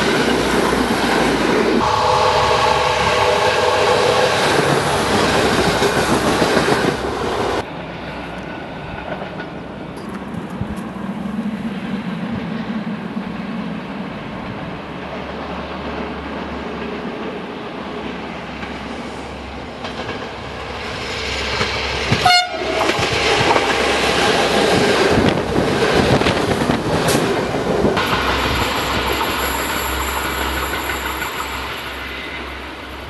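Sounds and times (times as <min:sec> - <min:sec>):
train rumbling over rails: 0:00.0 - 0:33.0
train horn blast: 0:01.8 - 0:05.2, 0:22.2 - 0:23.0.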